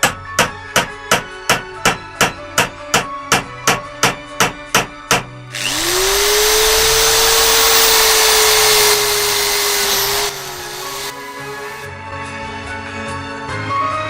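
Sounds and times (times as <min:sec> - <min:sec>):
electric power tool running: 0:05.5 - 0:11.9.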